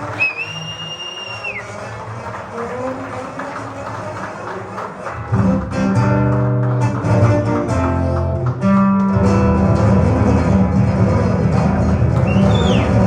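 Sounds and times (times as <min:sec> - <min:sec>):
acoustic guitar plucking: 0:05.2 - 0:13.0.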